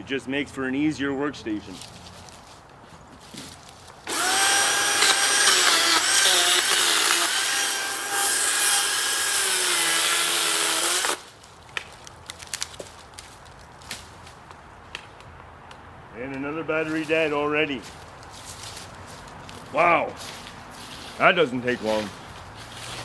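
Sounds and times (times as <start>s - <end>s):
electric chainsaw cutting wood: 4.0s - 11.3s.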